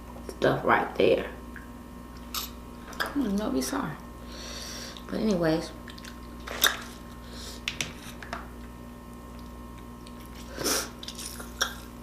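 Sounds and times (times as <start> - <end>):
crunch or slurp eating: 9.3 - 12.0.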